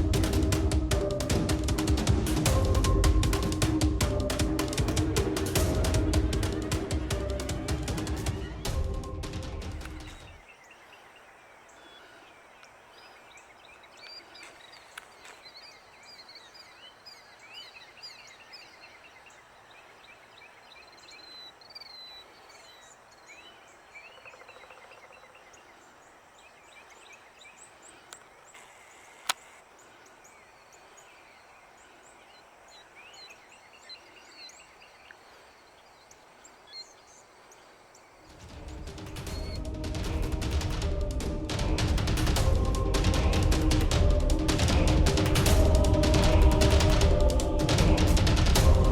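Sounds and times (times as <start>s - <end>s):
music: 0.0s - 10.4s, 38.4s - 48.9s
songbirds chirping and trilling: 0.0s - 48.9s
faint steady hiss: 9.8s - 39.6s.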